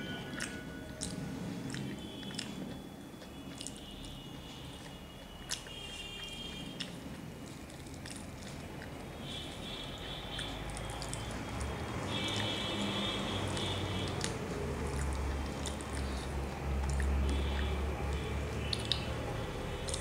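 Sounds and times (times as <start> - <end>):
person chewing soft food: 0.0 - 20.0
sharp moist mouth clicks: 0.3 - 2.6, 12.3 - 20.0.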